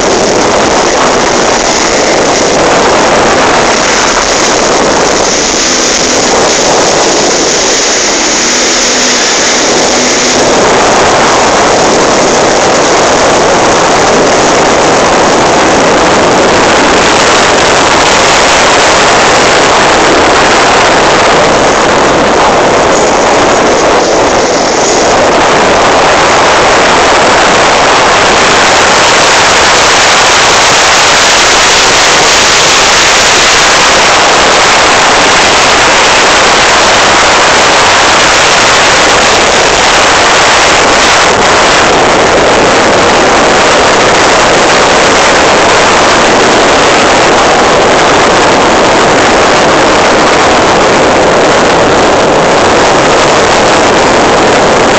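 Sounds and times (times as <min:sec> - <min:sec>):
wind and water rushing: 0:00.0 - 0:54.9.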